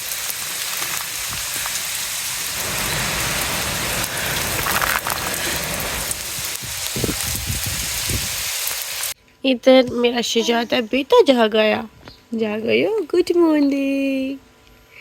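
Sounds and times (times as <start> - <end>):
heavy rain: 0.0 - 9.2.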